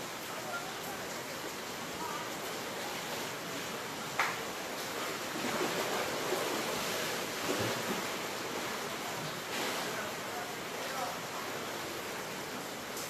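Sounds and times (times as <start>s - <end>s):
surf washing onto shore: 0.0s - 13.0s.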